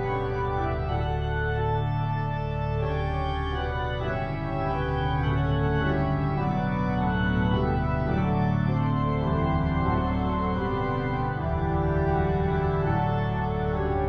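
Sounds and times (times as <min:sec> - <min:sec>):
organ playing slow chords: 0:00.0 - 0:14.0.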